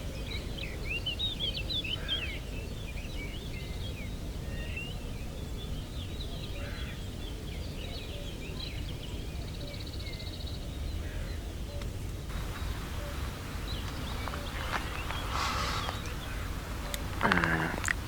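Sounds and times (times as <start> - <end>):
small birds chirping: 5.6 - 18.0
bird trill: 12.3 - 18.0
low background rumble: 12.3 - 18.0.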